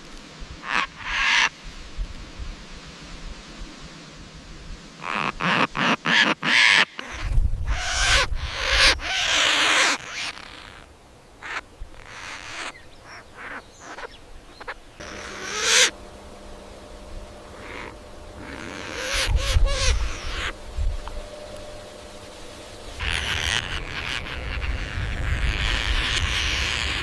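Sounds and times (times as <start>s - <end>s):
parrot squawks and calls: 5.1s - 10.8s, 11.4s - 16.0s, 17.5s - 20.6s, 23.0s - 27.0s.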